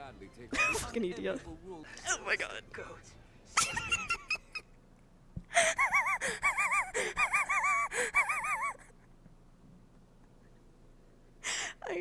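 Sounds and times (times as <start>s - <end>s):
sharp gasping breaths: 5.5s - 8.2s, 11.4s - 11.8s
person squealing: 5.6s - 8.9s.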